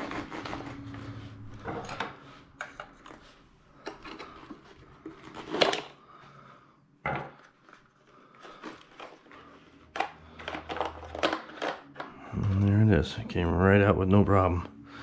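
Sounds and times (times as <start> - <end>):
plastic parts clicking and scraping: 0.0 - 6.0, 7.3 - 12.8.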